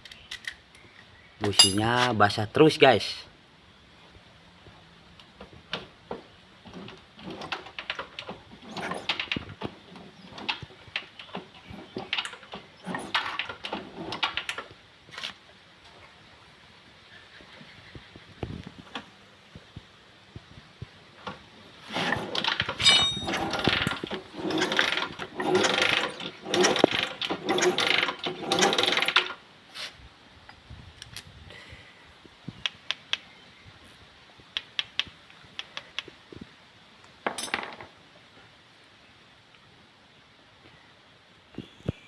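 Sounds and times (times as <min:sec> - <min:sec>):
tool scraping metal: 0:21.9 - 0:29.2.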